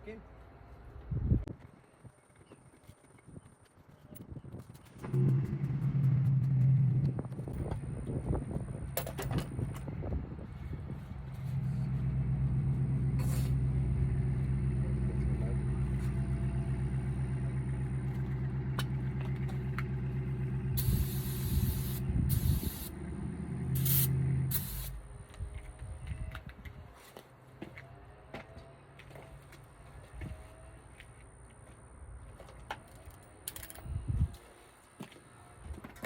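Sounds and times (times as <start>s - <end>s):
engine humming: 4.7s - 26.8s
hissing air bursts: 20.8s - 23.0s, 23.8s - 25.0s.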